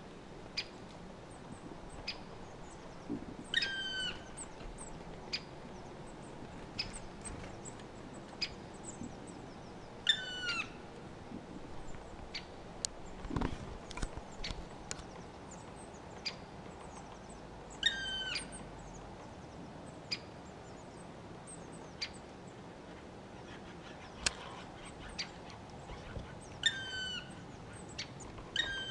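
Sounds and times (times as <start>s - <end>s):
bird calling: 1.9s - 10.9s, 17.7s - 19.0s, 23.4s - 28.9s.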